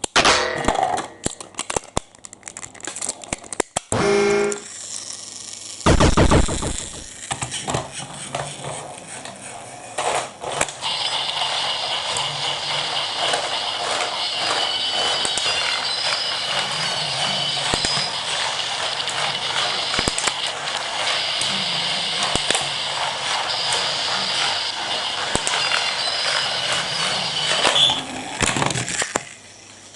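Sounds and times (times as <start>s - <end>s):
plastic clicks and clatter: 1.2s - 3.9s
toy train motor whirring: 2.4s - 29.9s.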